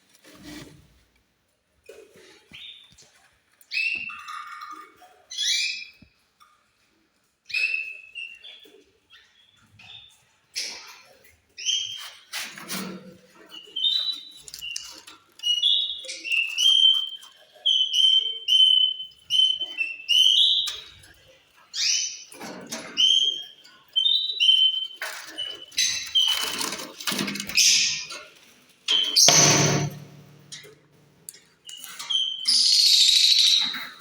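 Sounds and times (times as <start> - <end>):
harsh scratchy bird calls: 23.1 - 30.6.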